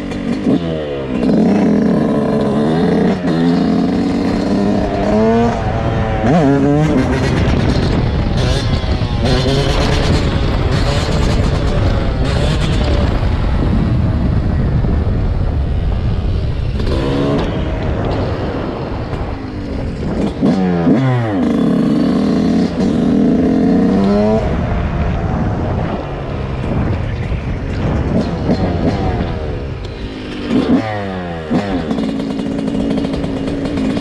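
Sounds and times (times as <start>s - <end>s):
dirt bike engine revving: 0.0s - 34.0s
wind noise rumble: 0.0s - 34.0s.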